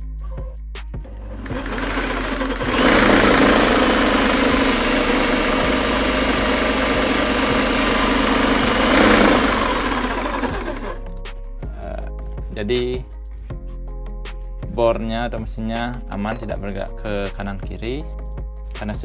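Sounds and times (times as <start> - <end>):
electric drill whining: 1.1 - 11.0.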